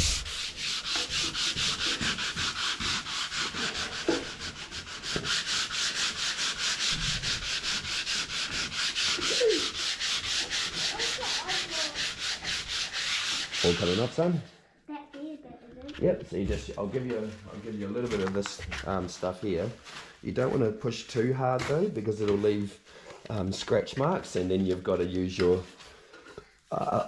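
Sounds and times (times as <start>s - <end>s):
sandpaper rubbing on wood: 0.0s - 14.4s.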